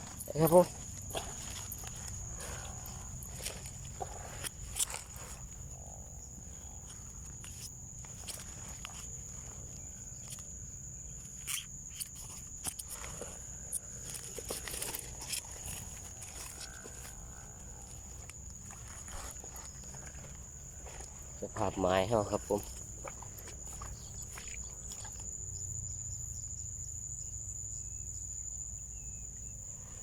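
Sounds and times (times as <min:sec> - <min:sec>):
footsteps through vegetation: 0:00.0 - 0:05.7, 0:06.7 - 0:11.3, 0:12.0 - 0:25.4
high-pitched insect trill: 0:00.0 - 0:30.0.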